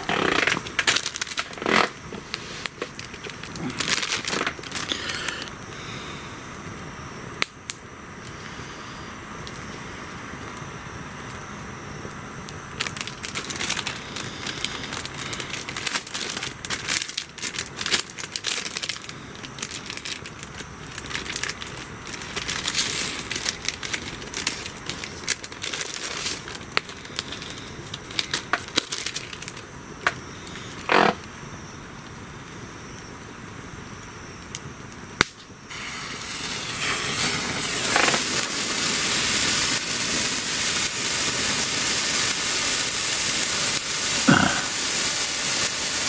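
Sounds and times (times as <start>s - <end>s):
hissing bursts: 0.0s - 6.8s, 30.1s - 31.2s, 35.4s - 46.0s
fire crackling and popping: 0.0s - 46.0s.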